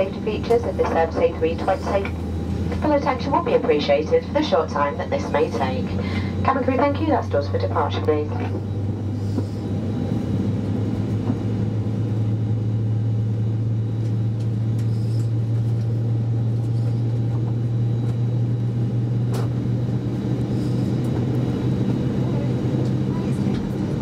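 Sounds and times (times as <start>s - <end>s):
airplane cabin hum: 0.0s - 24.0s.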